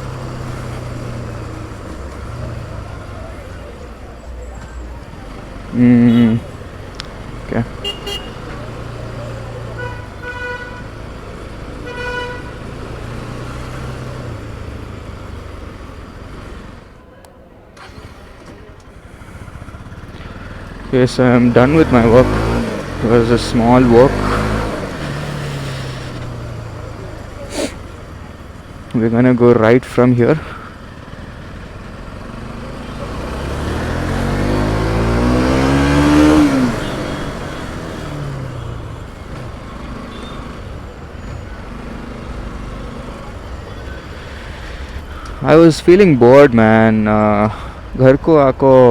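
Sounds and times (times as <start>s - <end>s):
road traffic engines: 0.0s - 48.9s
vehicle horn honking: 7.8s - 8.6s, 9.7s - 11.0s, 11.8s - 12.8s.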